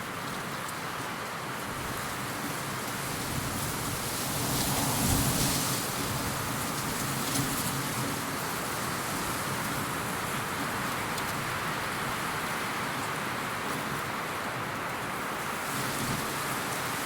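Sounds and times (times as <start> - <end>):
steady rushing hiss: 1.7 - 10.8.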